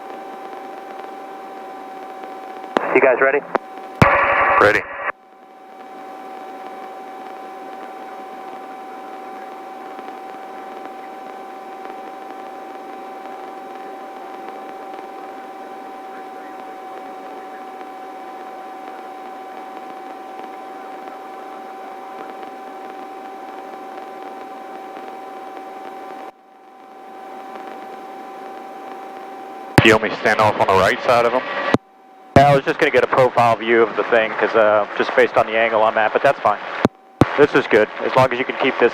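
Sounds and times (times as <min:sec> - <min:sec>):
helicopter cabin whine: 0:00.0 - 0:38.9
intercom hiss: 0:02.8 - 0:05.2, 0:29.6 - 0:31.8, 0:32.4 - 0:38.9.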